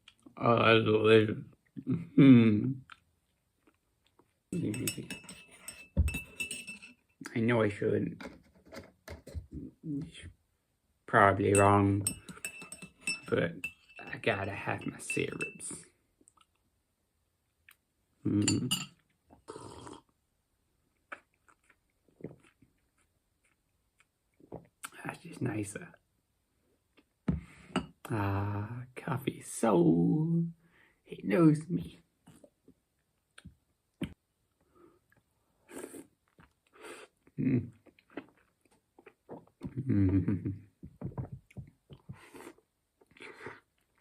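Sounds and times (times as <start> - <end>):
tableware clinking and knocking: 4.6 - 7.0, 11.5 - 15.6, 18.4 - 19.0
chewing and lip clicks: 21.0 - 24.1.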